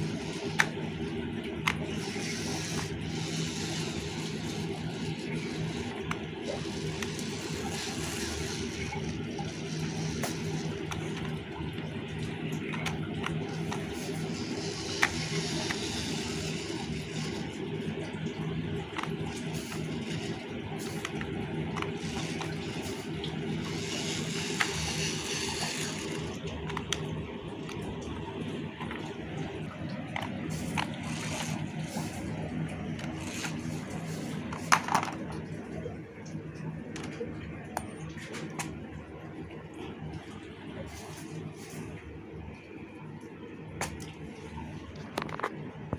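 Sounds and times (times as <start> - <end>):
small electric motor humming: 1.6 - 11.3, 12.8 - 17.7, 18.9 - 27.0, 30.2 - 32.3, 33.0 - 35.1
clicks and scraping: 30.1 - 35.4.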